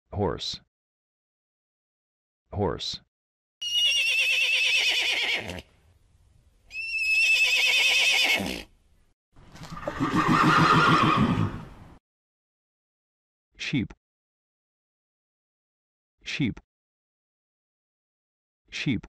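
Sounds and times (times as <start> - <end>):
horse whinnying: 3.6 - 5.7, 6.7 - 8.7, 9.6 - 11.8.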